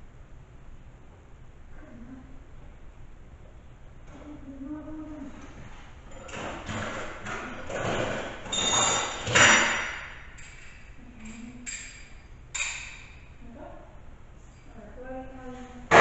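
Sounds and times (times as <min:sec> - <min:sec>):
metal parts knocking and clinking: 0:06.1 - 0:13.2.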